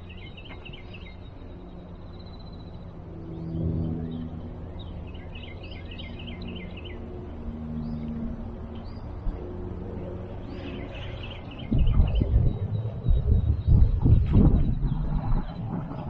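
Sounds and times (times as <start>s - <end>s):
songbirds chirping: 0.0s - 16.0s
loud low rumble: 10.5s - 16.0s.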